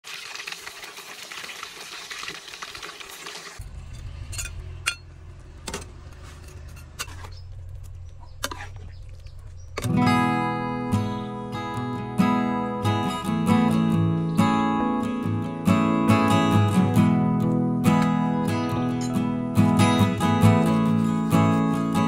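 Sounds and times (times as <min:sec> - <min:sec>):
fish sizzling in oil: 0:00.0 - 0:03.6
low hum: 0:03.6 - 0:10.4
acoustic guitar music: 0:09.7 - 0:22.0.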